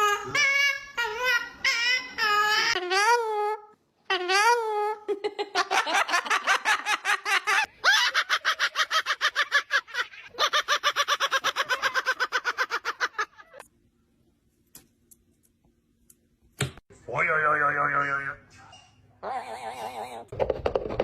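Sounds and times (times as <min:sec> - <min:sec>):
parrot imitating laughter: 0:00.0 - 0:03.5, 0:04.1 - 0:13.6.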